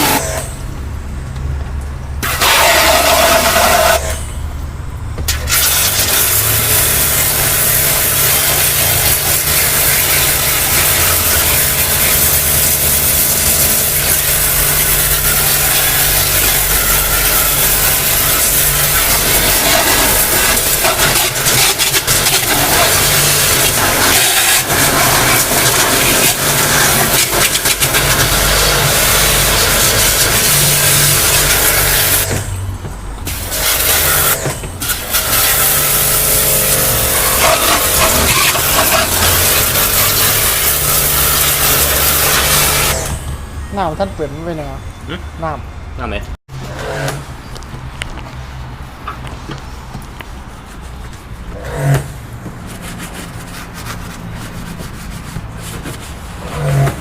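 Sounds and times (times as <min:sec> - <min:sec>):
loud motor running: 0:02.2 - 0:04.4, 0:05.3 - 0:32.6, 0:33.2 - 0:43.5.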